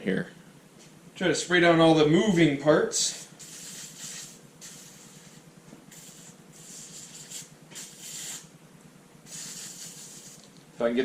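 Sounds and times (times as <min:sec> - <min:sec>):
aerosol can spraying hiss: 0:03.2 - 0:08.5, 0:09.3 - 0:10.5.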